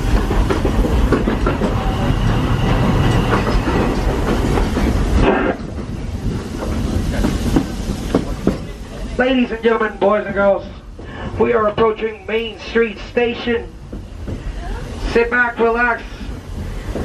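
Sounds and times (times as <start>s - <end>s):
wheels clicking over rail joints: 0.0s - 8.8s, 13.3s - 17.0s
train car rumbling: 0.0s - 17.0s.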